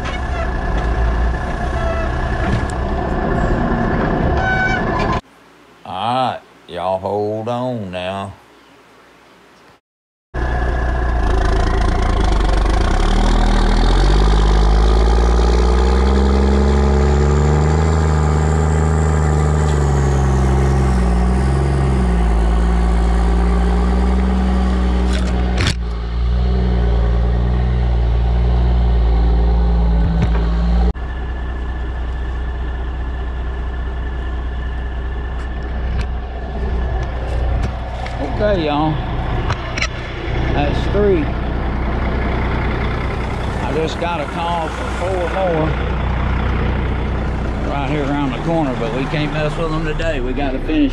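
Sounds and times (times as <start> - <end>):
dump truck engine revving: 0.0 - 5.2, 10.4 - 50.9.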